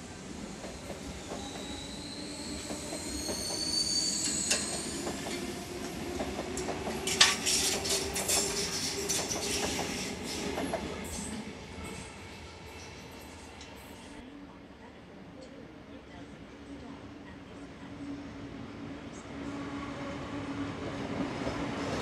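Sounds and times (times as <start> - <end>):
train wheels squealing: 0.8 - 5.6.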